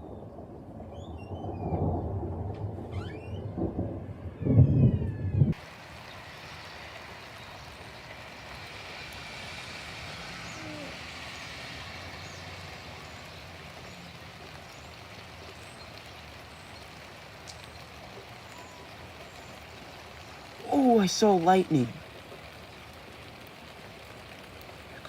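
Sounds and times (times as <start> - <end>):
rain hissing: 5.5 - 25.0.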